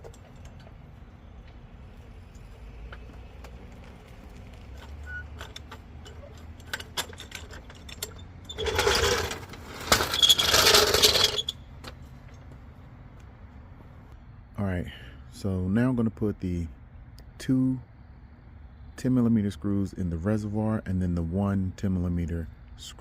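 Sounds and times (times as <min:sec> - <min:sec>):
floor jack rattling: 0:04.8 - 0:11.4.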